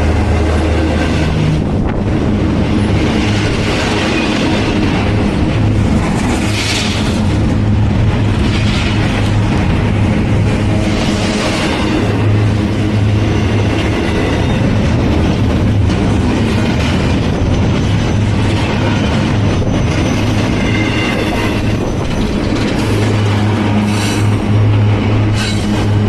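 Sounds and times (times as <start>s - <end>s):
train wheels rumbling on rail: 0.0s - 26.0s
high wheel squeals: 19.0s - 22.5s.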